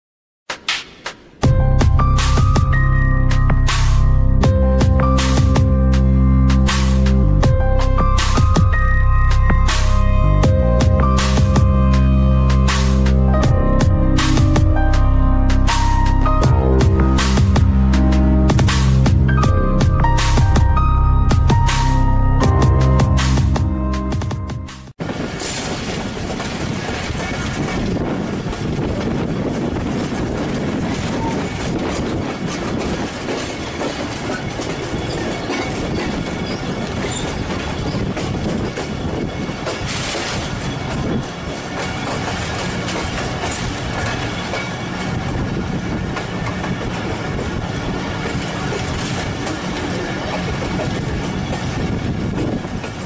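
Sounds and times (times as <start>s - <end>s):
train wheels clacking on rails: 25.0s - 53.0s.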